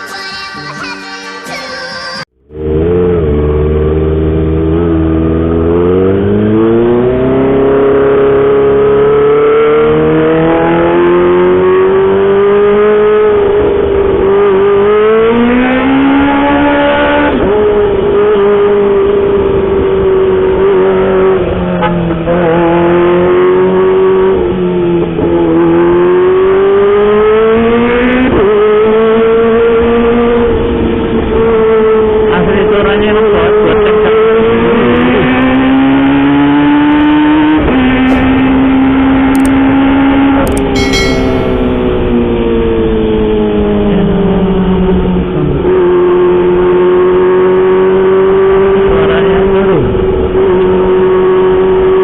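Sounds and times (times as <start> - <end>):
motorcycle engine revving: 2.4 - 16.9.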